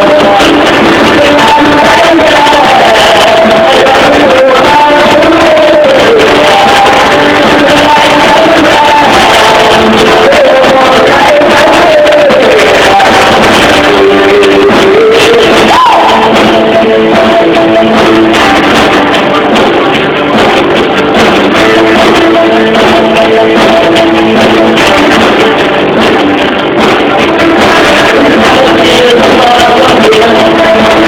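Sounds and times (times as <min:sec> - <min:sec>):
live rock band playing: 0:00.0 - 0:31.0.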